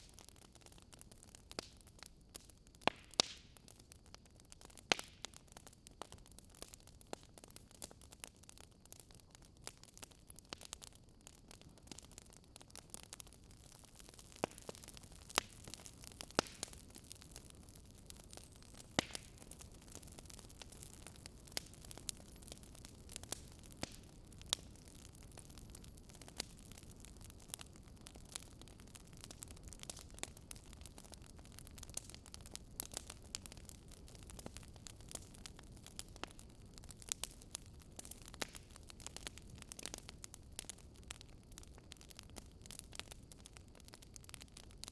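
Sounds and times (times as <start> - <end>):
fire crackling and popping: 0.0 - 44.9
low rush of flames: 11.3 - 43.2.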